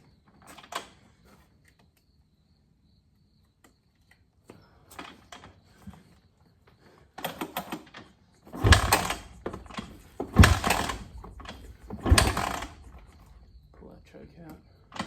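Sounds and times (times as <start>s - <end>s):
motorcycle kick-start thump: 8.5s - 13.9s
engine noise bursts: 8.6s - 15.0s.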